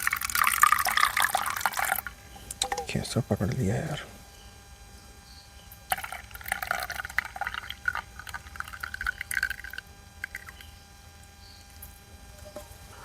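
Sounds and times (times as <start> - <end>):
tea pouring into cup: 0.0 - 2.9, 5.9 - 10.7.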